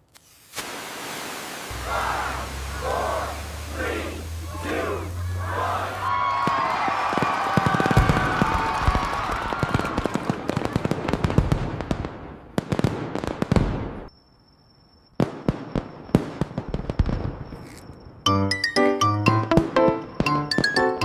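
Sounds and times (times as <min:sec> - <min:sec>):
fireworks crackling and popping: 0:00.0 - 0:01.7, 0:06.3 - 0:14.1.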